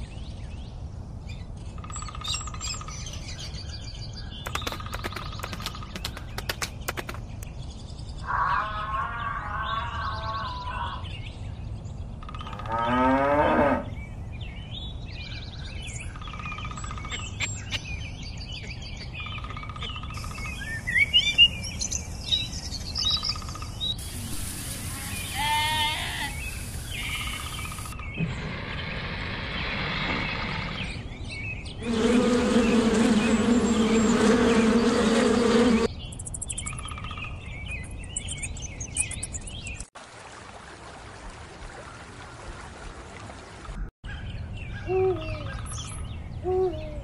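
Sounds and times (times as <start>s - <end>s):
birds chirping: 0.0s - 13.1s, 13.7s - 39.9s.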